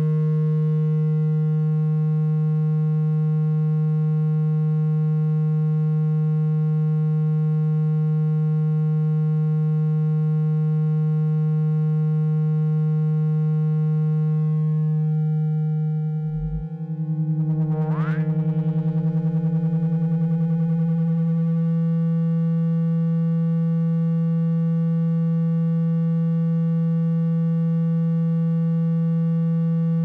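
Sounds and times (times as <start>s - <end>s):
low buzzing tone: 0.0s - 30.0s
deeper tone: 15.8s - 22.0s.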